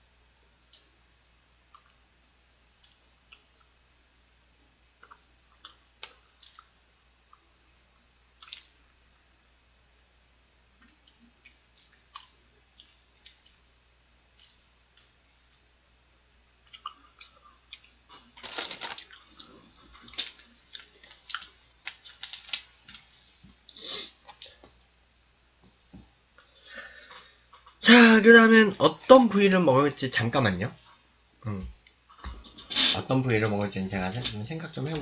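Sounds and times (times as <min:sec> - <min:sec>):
chewing and crunching fried food: 0:02.7 - 0:03.8, 0:05.0 - 0:08.9, 0:10.8 - 0:15.8, 0:16.6 - 0:24.7.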